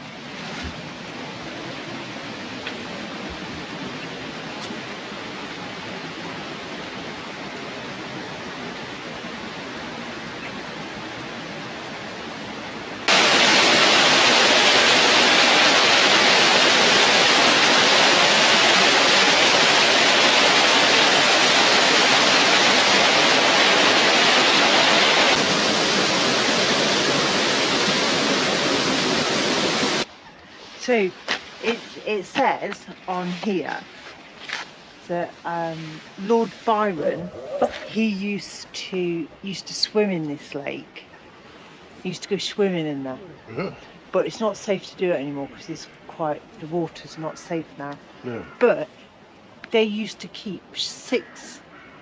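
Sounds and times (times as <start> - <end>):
water falling over a cascade: 13.1 - 30.1.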